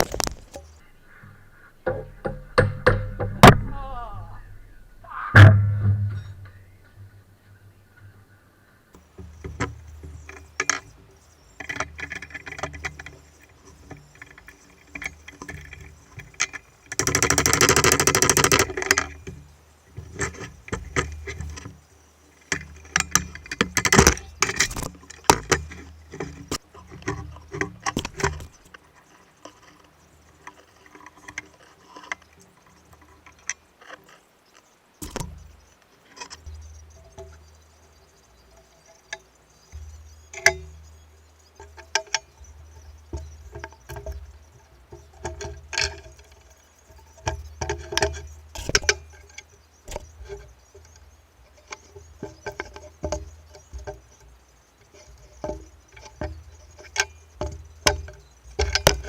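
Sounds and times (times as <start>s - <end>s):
low hum: 0.0s - 26.6s.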